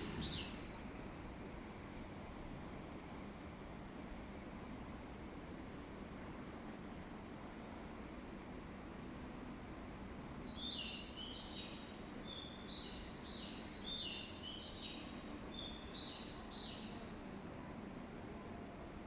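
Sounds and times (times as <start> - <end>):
birds chirping: 0.0 - 0.8
low hum of station ambience: 0.0 - 19.0.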